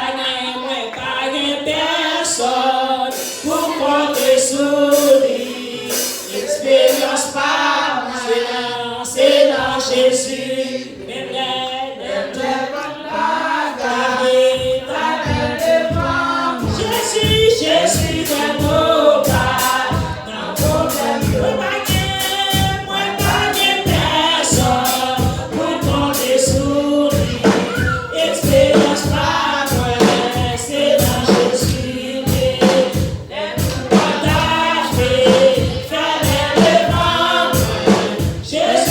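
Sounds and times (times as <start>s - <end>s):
group singing gospel song: 0.0s - 38.9s
steady low beat: 14.5s - 38.9s.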